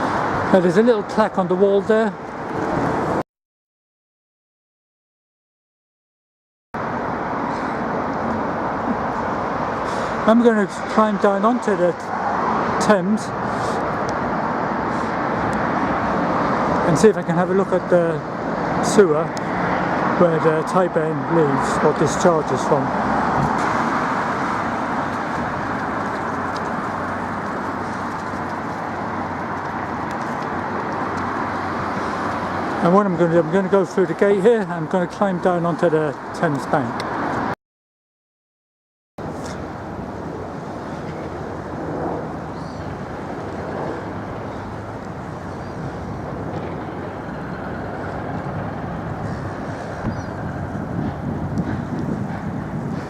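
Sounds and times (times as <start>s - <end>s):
cars passing: 0.0s - 3.2s, 6.8s - 37.6s, 39.2s - 53.0s
road traffic rumble: 0.0s - 3.2s, 6.8s - 37.6s, 39.2s - 53.0s.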